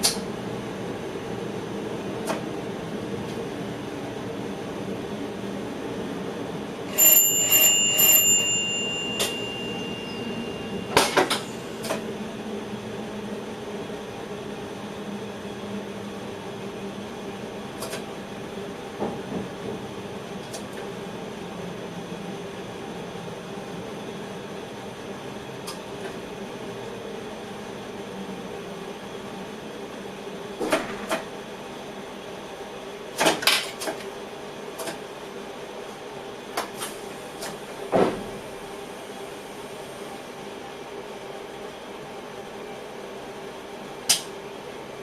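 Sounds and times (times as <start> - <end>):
electric train running hum: 0.0 - 45.0
bell ringing: 6.9 - 11.9.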